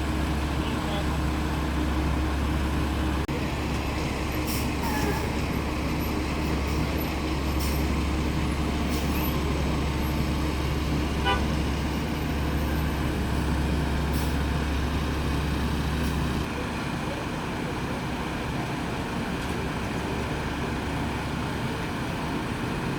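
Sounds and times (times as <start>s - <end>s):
vehicle engine droning: 0.0s - 22.9s.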